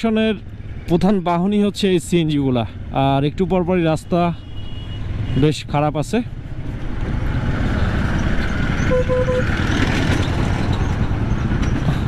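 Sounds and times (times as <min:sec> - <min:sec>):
motorcycle rumble on rough road: 0:06.4 - 0:12.0
vehicle horn short beeps: 0:08.9 - 0:09.5.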